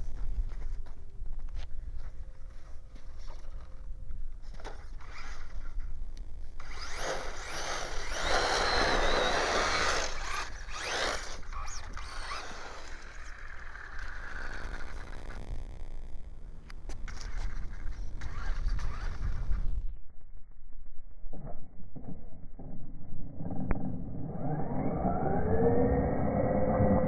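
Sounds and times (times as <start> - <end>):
rc car driving through snow: 4.5 - 19.8
electric motor whine: 4.6 - 19.8, 24.3 - 27.0.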